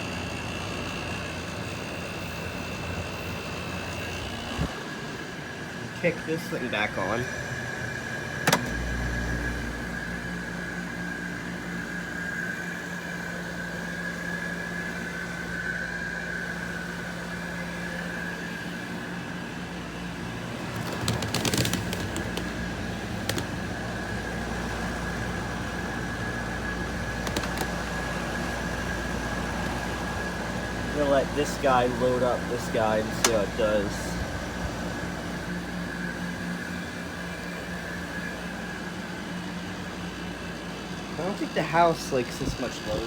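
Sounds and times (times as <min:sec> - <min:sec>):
air conditioner humming: 0:00.0 - 0:43.0
thin steady whine: 0:00.0 - 0:43.0
air conditioner clicks and rattles: 0:05.9 - 0:09.2, 0:20.2 - 0:36.8, 0:38.6 - 0:43.0.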